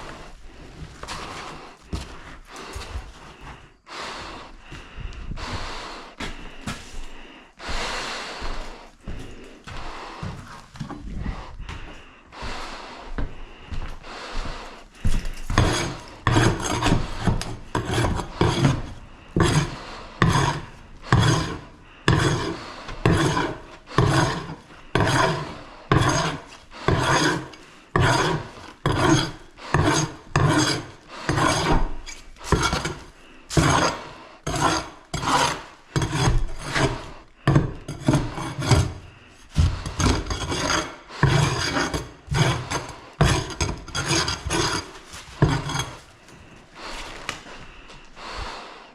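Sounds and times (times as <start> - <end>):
rasping strokes by hand: 14.4 - 47.8.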